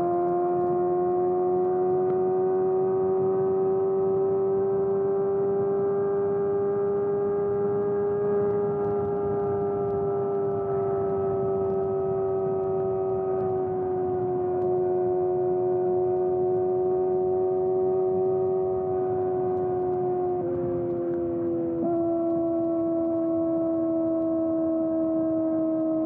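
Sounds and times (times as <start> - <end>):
motorcycle engine at steady revs: 0.0 - 26.0.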